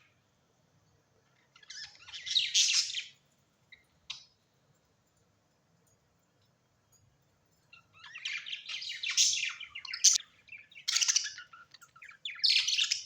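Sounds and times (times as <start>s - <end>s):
bird warbling chirps: 1.4s - 3.2s, 7.8s - 13.0s
sharp bird calls: 7.8s - 13.0s.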